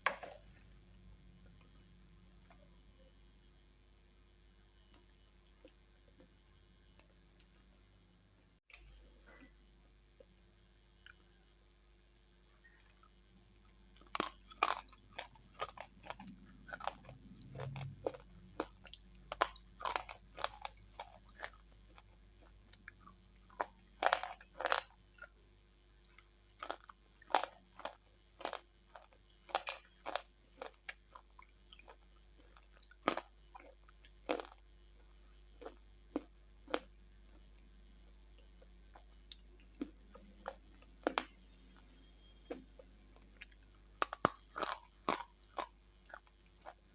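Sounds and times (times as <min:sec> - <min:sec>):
biting and chewing crunches: 0:14.0 - 0:25.4, 0:26.1 - 0:37.5, 0:38.6 - 0:46.9.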